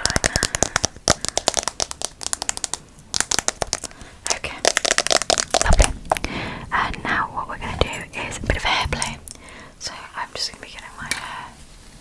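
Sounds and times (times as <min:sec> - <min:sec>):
rapid clicking and crackling: 0:00.0 - 0:06.0.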